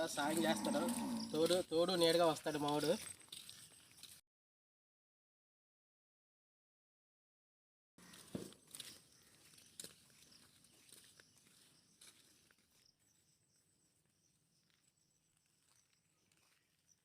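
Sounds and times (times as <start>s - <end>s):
soft footsteps: 0.1s - 4.2s, 8.0s - 13.4s.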